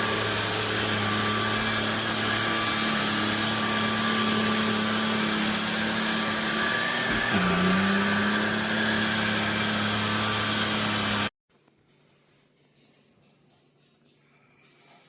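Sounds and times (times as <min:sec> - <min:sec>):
stick vacuum running: 0:00.0 - 0:11.3.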